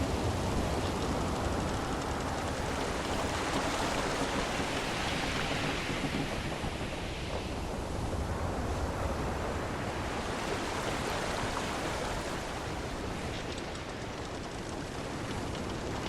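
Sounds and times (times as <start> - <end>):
waves washing against a hull: 0.0 - 16.0
faint clicks: 13.0 - 16.0.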